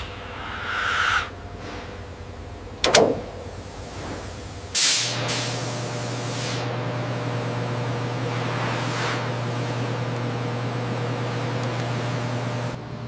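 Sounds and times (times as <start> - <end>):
burst of hissing: 0.0 - 2.0
steady low hum: 0.0 - 13.0.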